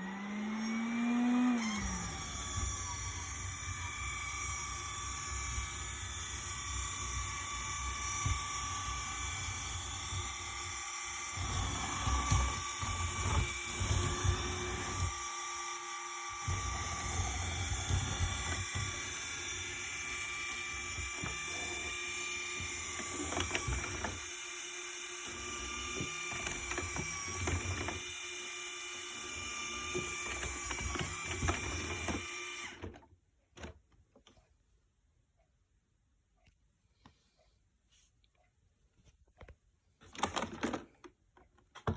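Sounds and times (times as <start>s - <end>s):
robot vacuum cleaner whirring: 0.0s - 33.0s.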